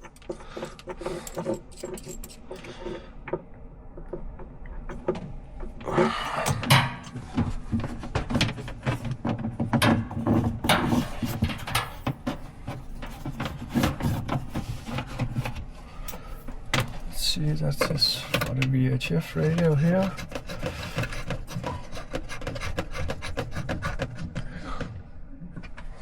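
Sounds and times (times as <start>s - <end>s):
hands handling cable and fittings: 6.5s - 22.6s.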